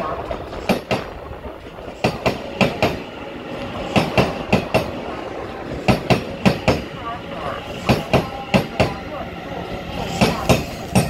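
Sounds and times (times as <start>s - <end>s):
train rumble: 0.0s - 11.0s
train wheels clacking over rail joints: 0.2s - 4.9s, 5.7s - 6.9s, 10.1s - 11.0s.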